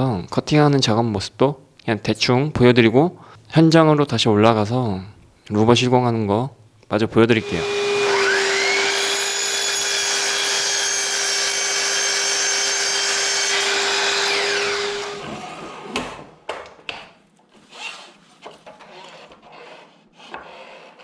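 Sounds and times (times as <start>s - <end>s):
power saw whining: 7.4s - 16.0s.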